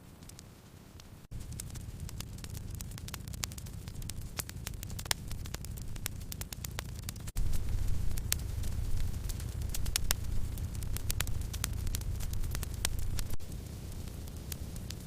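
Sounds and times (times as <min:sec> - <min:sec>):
wood fire crackling: 0:00.0 - 0:15.0
sharp fire pops: 0:00.1 - 0:15.0
low rumble: 0:01.3 - 0:15.0.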